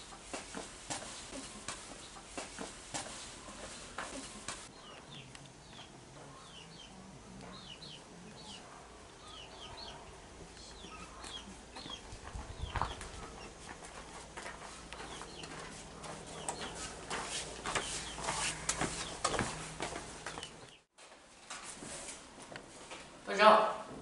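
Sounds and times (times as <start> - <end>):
birds chirping falling notes: 14.5 - 20.8.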